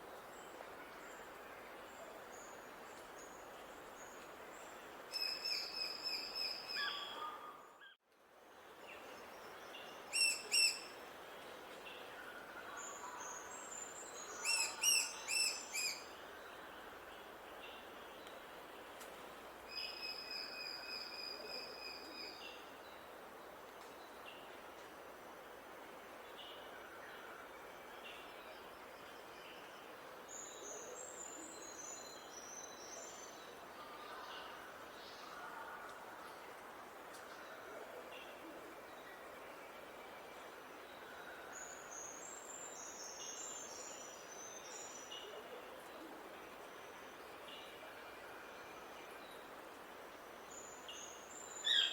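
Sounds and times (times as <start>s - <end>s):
faint background hiss: 0.0s - 51.9s
songbird singing: 50.3s - 51.9s.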